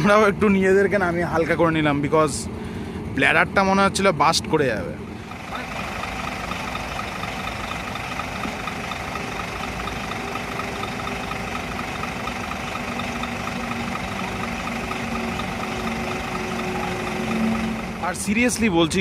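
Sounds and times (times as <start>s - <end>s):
diesel bus engine idling: 0.0s - 19.0s
faint regular ticking: 5.2s - 18.5s.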